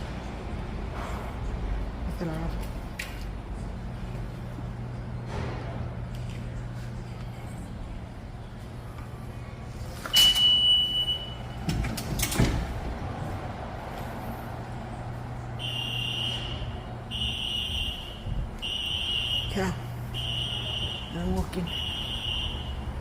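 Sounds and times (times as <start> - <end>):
steady low hum: 0.0 - 10.1, 10.7 - 23.0
electronic alarm buzzing: 15.6 - 22.9.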